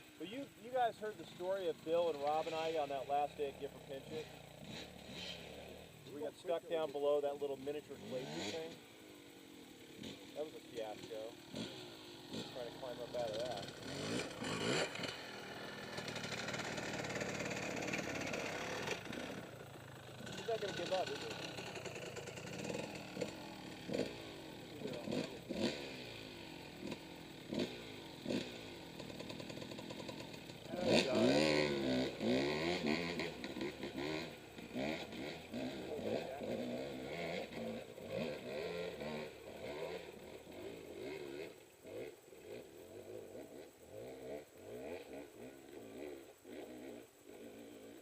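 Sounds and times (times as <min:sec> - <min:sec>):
dirt bike engine revving: 0:00.0 - 0:48.0.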